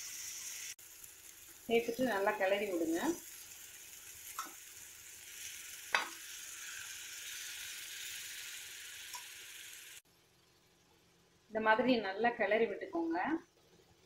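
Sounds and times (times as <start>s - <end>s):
cabbage sizzling in hot oil: 0.0s - 10.0s.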